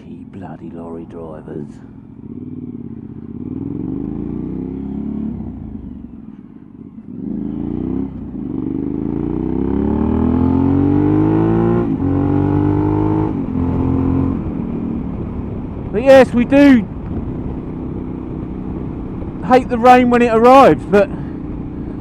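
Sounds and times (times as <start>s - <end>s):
motorcycle engine accelerating: 1.0s - 22.0s.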